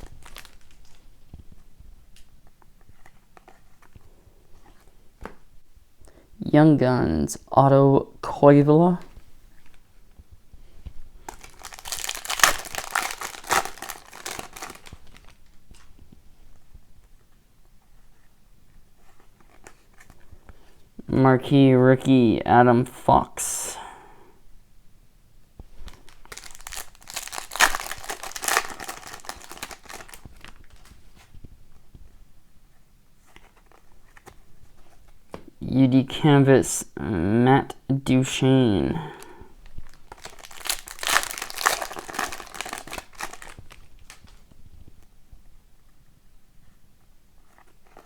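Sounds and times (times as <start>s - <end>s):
foil wrapper crinkling: 0.0s - 1.4s, 11.2s - 16.0s, 25.8s - 31.1s, 39.2s - 44.6s.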